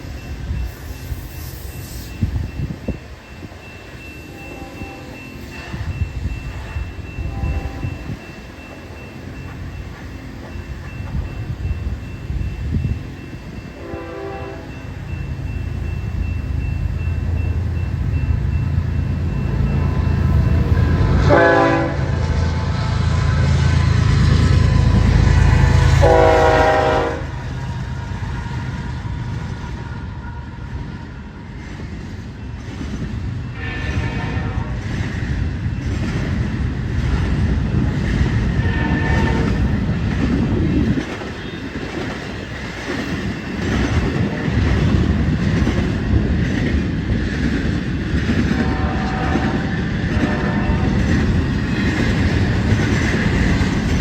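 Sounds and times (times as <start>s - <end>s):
diesel locomotive engine rumble: 0.0s - 54.0s
train horn: 4.3s - 6.0s, 7.2s - 8.2s, 13.8s - 14.9s, 19.8s - 27.6s, 33.5s - 35.0s, 38.5s - 39.8s, 41.3s - 41.8s, 48.5s - 51.2s
freight cars clattering on rails: 31.6s - 54.0s.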